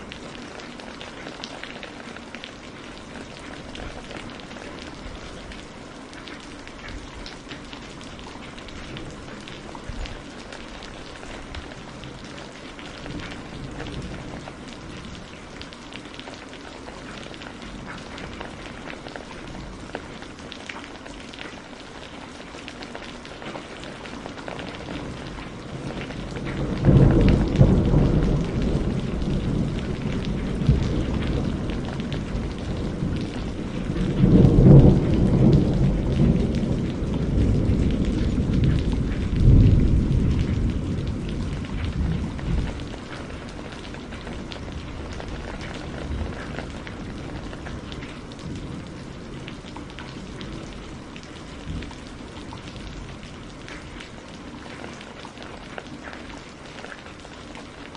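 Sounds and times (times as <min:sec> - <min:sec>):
steady rain: 0:00.0 - 0:57.9
thunder rolling: 0:25.0 - 0:49.5.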